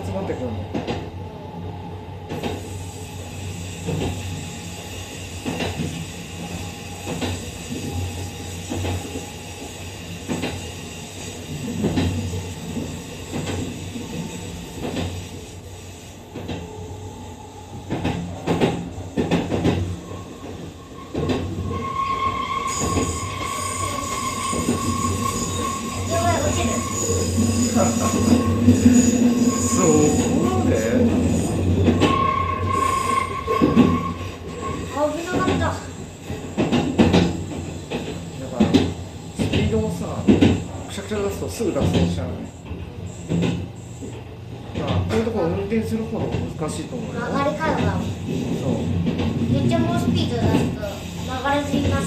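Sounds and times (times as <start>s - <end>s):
train wheels rumbling on rail: 0.0s - 52.0s
rail joint clicks: 0.7s - 1.1s, 2.2s - 2.7s, 3.7s - 6.1s, 7.0s - 8.0s, 8.6s - 16.8s, 17.8s - 45.4s
high wheel squeal: 19.0s - 36.7s.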